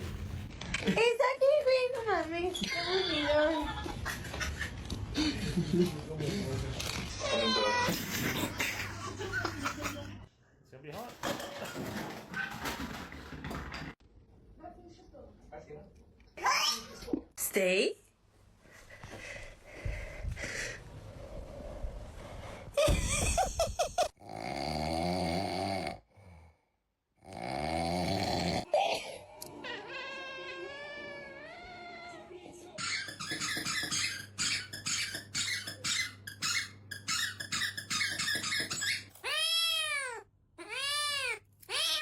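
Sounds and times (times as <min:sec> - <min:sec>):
cats meowing: 0:39.2 - 0:42.0.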